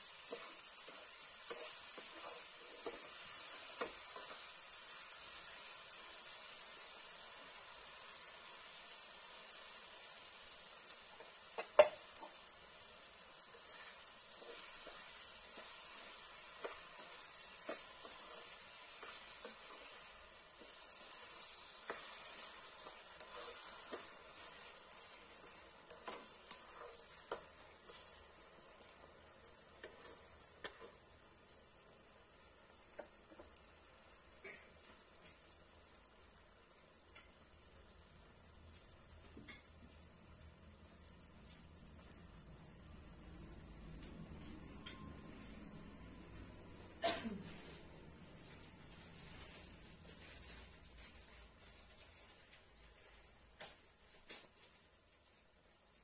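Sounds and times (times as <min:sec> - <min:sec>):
fruit sizzling in a wok: 0:00.0 - 0:56.0
spatula scraping and knocking pan: 0:00.1 - 0:04.9, 0:11.1 - 0:12.6, 0:13.4 - 0:31.0.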